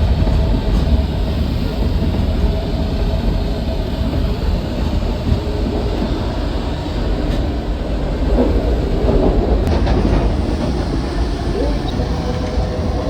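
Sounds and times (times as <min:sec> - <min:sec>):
elevated train running overhead: 0:00.0 - 0:13.0.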